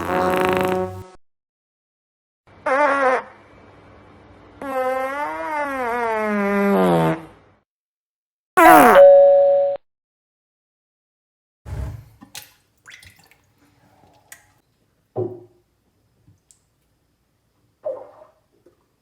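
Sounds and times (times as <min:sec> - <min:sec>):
bathwater splashing and knocks: 0:11.7 - 0:14.6.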